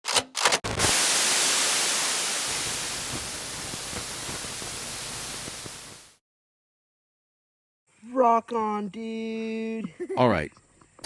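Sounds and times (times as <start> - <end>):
static hiss: 0.7 - 6.2
faint crackling: 2.5 - 6.1.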